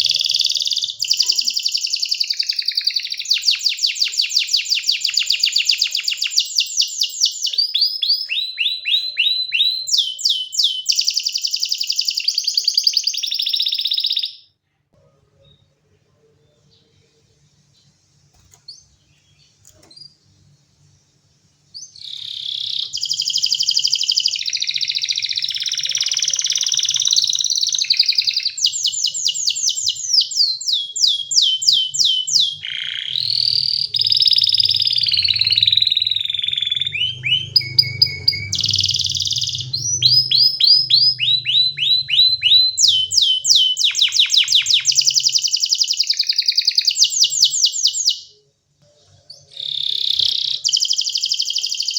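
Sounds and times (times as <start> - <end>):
canary singing: 0.0 - 14.5, 15.3 - 51.9.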